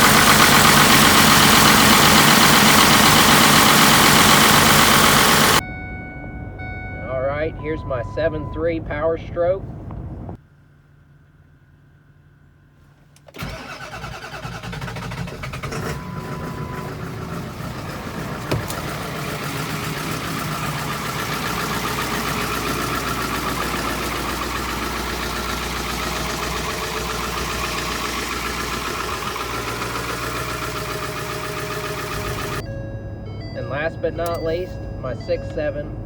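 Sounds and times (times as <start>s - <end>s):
diesel engine starting and idling: 0.0s - 36.0s.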